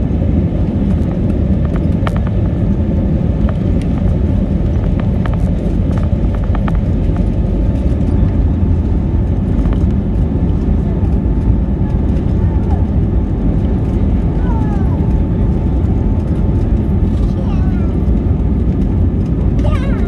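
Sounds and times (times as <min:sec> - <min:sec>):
aircraft low rumble: 0:00.0 - 0:20.0.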